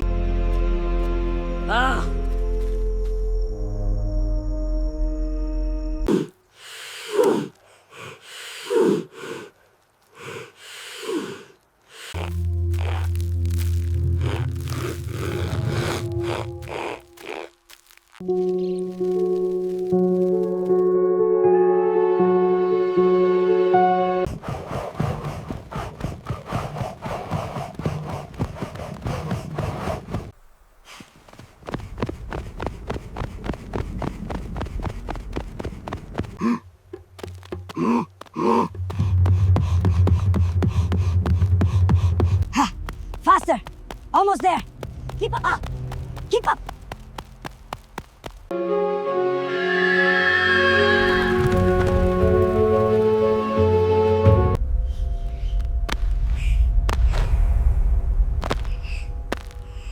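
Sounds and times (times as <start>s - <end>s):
person breathing hard and gasping: 6.1s - 13.0s, 24.3s - 30.3s, 37.7s - 42.9s.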